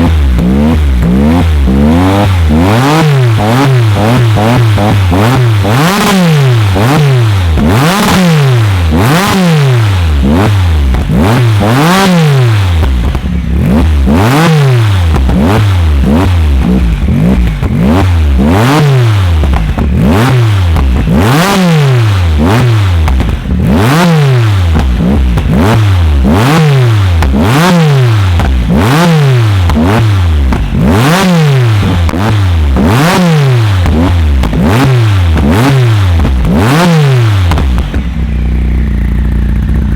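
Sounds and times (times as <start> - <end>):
car engine revving: 0.0 - 39.9
exhaust cracks and pops: 9.9 - 11.6, 12.5 - 14.0, 15.0 - 23.7, 24.6 - 28.9, 29.6 - 30.9, 33.6 - 39.9.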